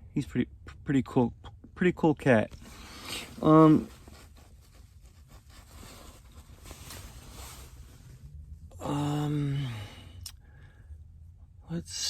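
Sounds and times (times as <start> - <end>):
man humming or groaning: 8.7 - 9.9.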